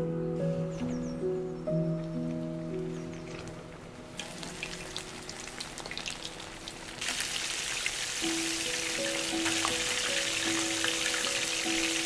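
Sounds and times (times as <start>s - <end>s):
soft background music: 0.0s - 12.0s
food deep-frying in oil: 4.2s - 12.0s.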